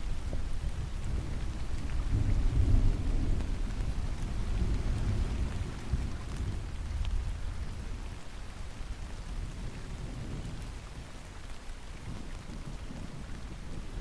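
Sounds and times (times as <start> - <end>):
distant thunder rumble: 0.0 - 11.2, 11.9 - 14.0
steady rain: 0.0 - 14.0.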